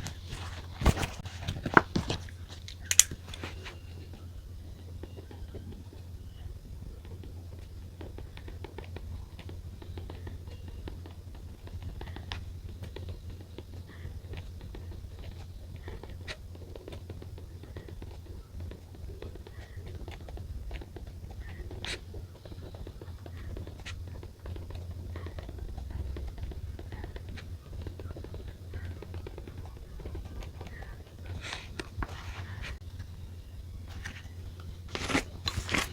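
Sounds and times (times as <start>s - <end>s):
steady low hum: 0.0s - 35.9s
pen and paper clicks and scratches: 6.9s - 32.8s, 33.9s - 35.9s.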